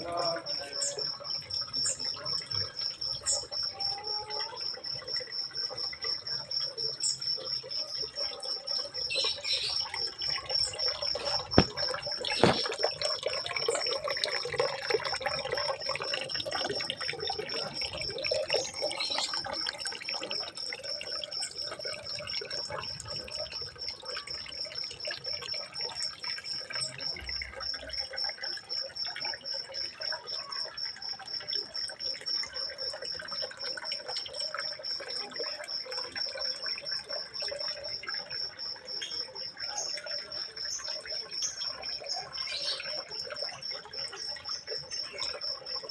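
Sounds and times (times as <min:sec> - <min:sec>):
water trickling: 0:00.0 - 0:45.9.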